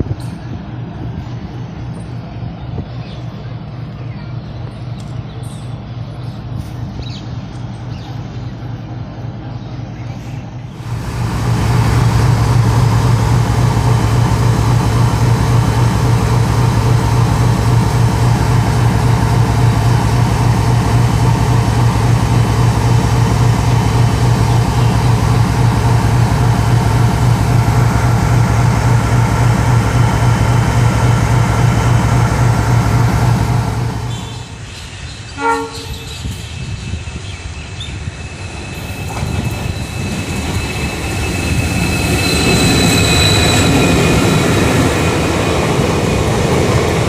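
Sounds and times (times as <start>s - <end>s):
locomotive engine throbbing: 10.8s - 34.7s, 38.3s - 47.0s.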